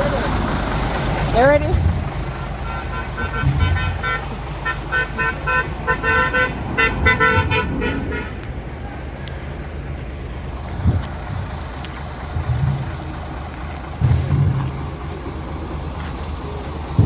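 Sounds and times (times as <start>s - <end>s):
engine and road rumble: 0.0s - 17.0s
vehicle horn short blasts: 2.6s - 8.4s.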